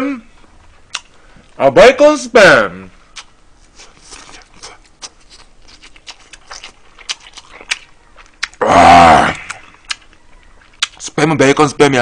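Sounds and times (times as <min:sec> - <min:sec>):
wet chewing and lip smacks: 0:00.9 - 0:01.6, 0:03.1 - 0:08.6, 0:09.4 - 0:11.1.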